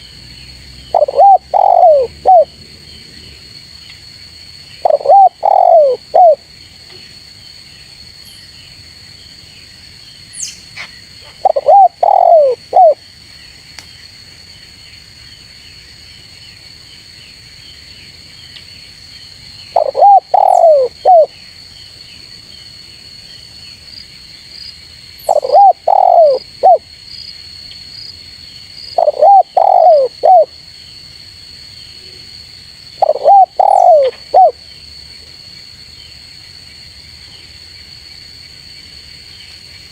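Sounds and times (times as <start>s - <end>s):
insects droning: 0.0s - 39.9s
dove cooing: 0.9s - 2.5s, 4.8s - 6.4s, 11.2s - 13.0s, 19.8s - 21.3s, 25.3s - 26.8s, 28.9s - 30.5s, 33.0s - 34.6s.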